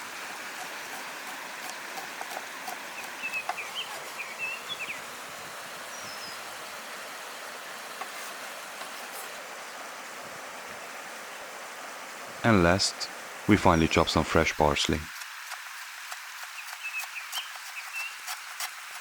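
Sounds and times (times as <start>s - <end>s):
outdoor background hiss: 0.0s - 19.0s
bird chirping: 3.0s - 5.0s, 5.9s - 6.4s, 16.6s - 18.3s.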